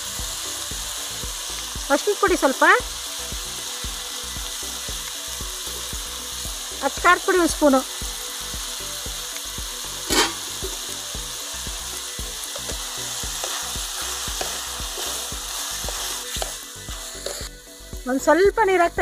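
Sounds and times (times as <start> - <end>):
vegetables sizzling in oil: 0.0 - 19.0
wooden spatula scraping pan: 17.1 - 17.5.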